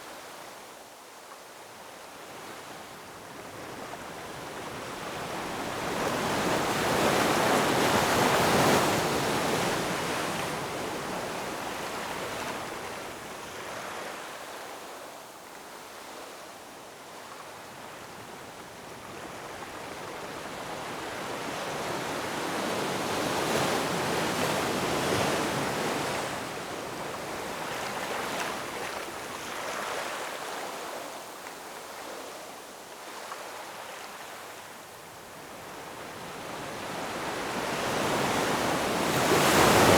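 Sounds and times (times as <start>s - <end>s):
ocean waves breaking on shore: 35.4s - 39.9s.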